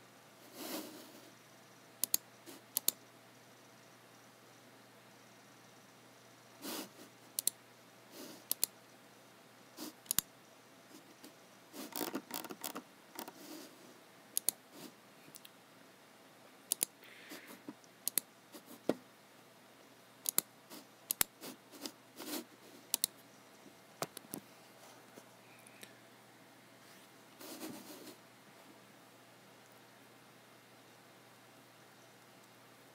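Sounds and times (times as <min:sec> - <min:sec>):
mouse clicks: 0:02.0 - 0:03.0, 0:07.3 - 0:07.6, 0:08.4 - 0:08.8, 0:10.0 - 0:10.3, 0:14.4 - 0:14.6, 0:16.7 - 0:17.0, 0:17.8 - 0:18.3, 0:20.2 - 0:20.5, 0:21.1 - 0:21.4, 0:22.9 - 0:23.2.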